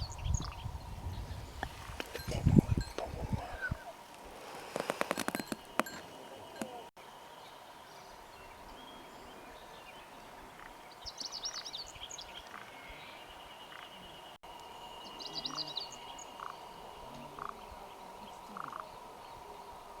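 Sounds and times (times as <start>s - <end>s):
bird twittering: 15.0s - 19.1s.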